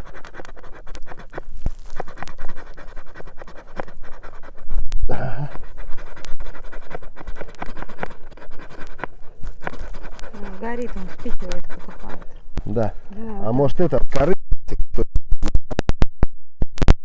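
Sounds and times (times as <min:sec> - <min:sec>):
fire scratching and crackling: 0:00.0 - 0:13.1
person blowing on tinder: 0:00.0 - 0:13.2.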